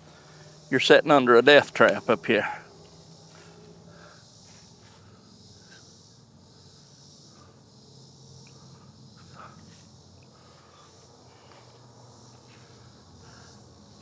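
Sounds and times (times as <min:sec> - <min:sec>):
insects chorus: 0:00.0 - 0:14.0
faint rustles: 0:08.4 - 0:13.5.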